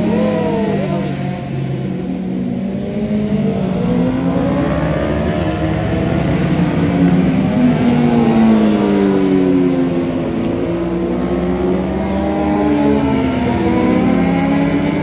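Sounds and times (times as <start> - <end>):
racing motorcycles passing: 0.0 - 15.0.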